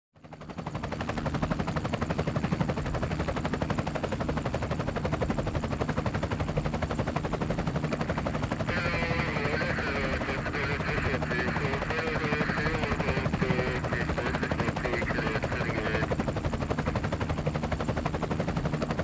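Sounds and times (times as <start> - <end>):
helicopter rotor beating: 0.2 - 19.0.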